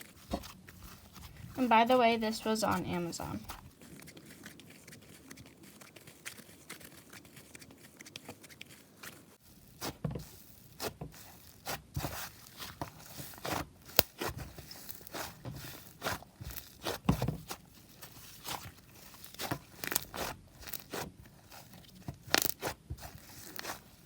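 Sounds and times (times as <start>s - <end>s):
slime crackling and popping: 3.4s - 24.0s.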